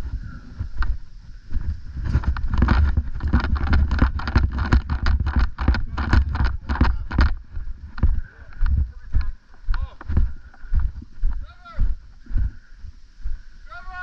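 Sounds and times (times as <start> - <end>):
steady low rumble: 0.0 - 13.7
rapid sharp clicks and knocks: 2.2 - 7.4.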